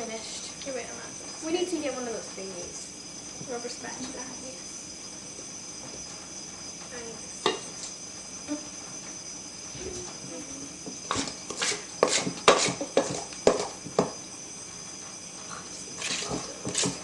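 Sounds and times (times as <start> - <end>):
faint high whine: 0.0 - 17.0
spatula scraping a mixing bowl: 11.1 - 13.8, 15.9 - 17.0.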